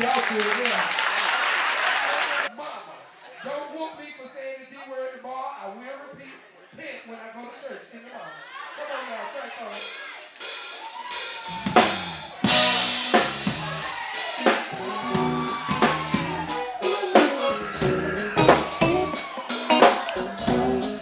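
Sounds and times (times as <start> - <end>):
live band playing: 9.8 - 21.0
bass line: 11.5 - 21.0
drum hits: 11.5 - 21.0.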